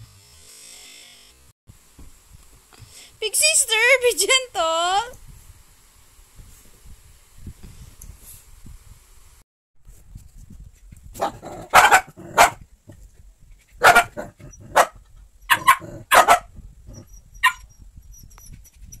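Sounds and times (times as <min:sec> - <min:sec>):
dog barking: 0:11.2 - 0:12.6, 0:13.8 - 0:17.7.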